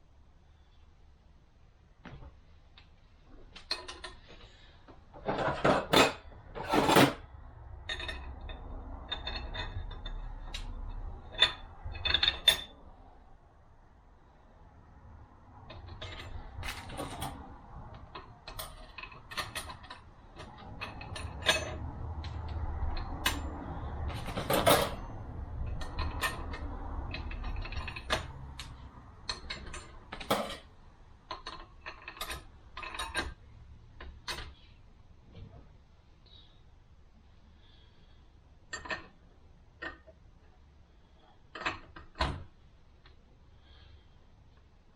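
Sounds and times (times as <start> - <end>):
metal scrape: 3.8 - 12.8, 15.6 - 33.4
metallic clicks and clinks: 7.8 - 12.8, 15.6 - 30.7, 31.3 - 33.4.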